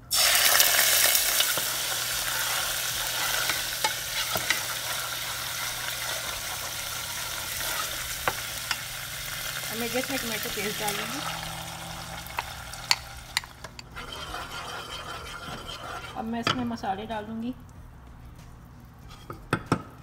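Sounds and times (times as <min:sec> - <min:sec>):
paste sizzling in hot oil: 0:00.1 - 0:16.3
wooden spoon stirring: 0:12.3 - 0:16.8.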